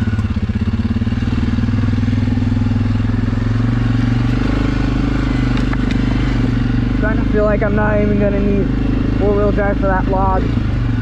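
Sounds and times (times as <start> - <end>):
atv engine under throttle: 0.0 - 11.0.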